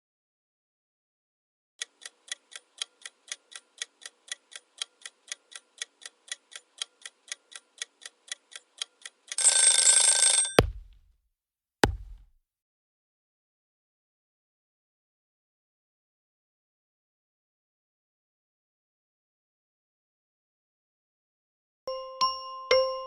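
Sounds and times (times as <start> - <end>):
sudden hit with low thud: 10.6 - 11.0, 11.8 - 12.2.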